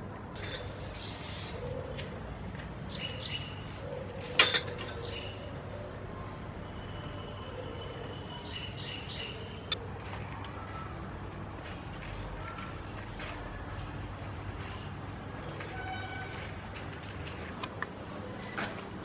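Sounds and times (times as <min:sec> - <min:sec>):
small birds chirping: 0:00.6 - 0:06.4.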